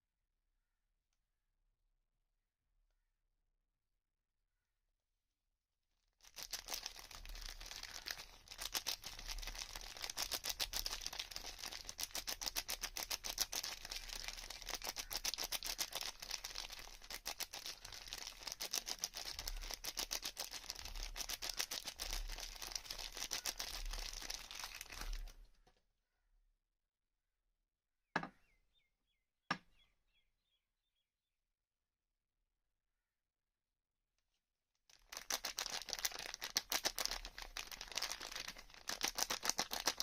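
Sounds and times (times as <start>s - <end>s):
soap packaging crackling: 6.2s - 25.5s, 34.9s - 40.0s.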